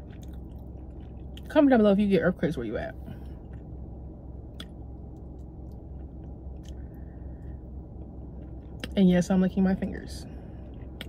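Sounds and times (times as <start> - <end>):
steady low hum: 0.0 - 11.0
wet mouth clicks and smacks: 4.5 - 6.9.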